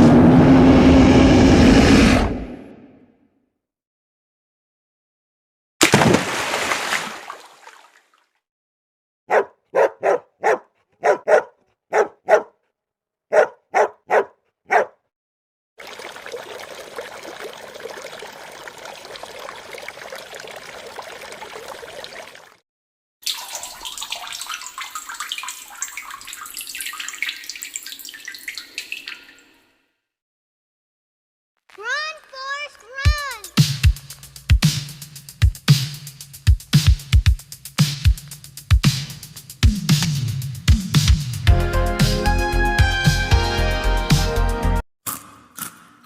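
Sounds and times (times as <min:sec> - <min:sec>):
water rushing: 0:05.8 - 0:08.0, 0:15.8 - 0:22.6
animal barking: 0:09.3 - 0:12.6, 0:13.3 - 0:15.0.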